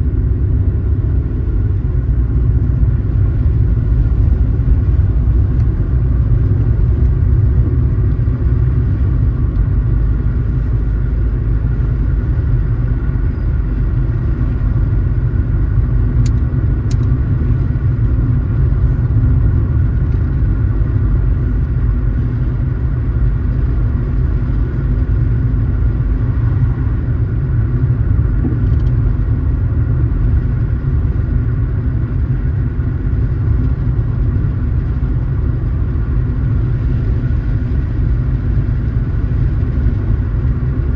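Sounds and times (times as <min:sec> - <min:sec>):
car engine and road noise: 0:00.0 - 0:40.9.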